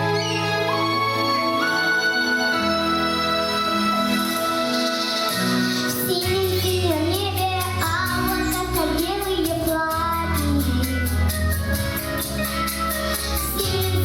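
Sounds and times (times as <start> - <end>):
pop backing track: 0.0 - 14.0
girl singing: 5.9 - 11.4, 13.4 - 14.0.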